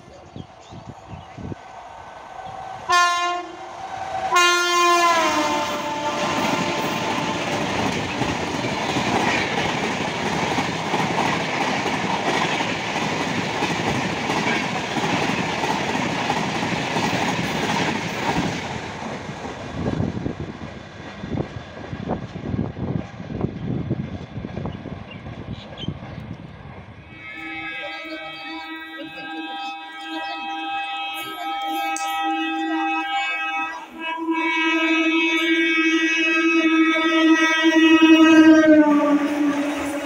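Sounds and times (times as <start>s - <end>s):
train coaches rushing past: 0.0s - 40.0s
train horn blasts: 2.4s - 9.7s, 27.0s - 40.0s.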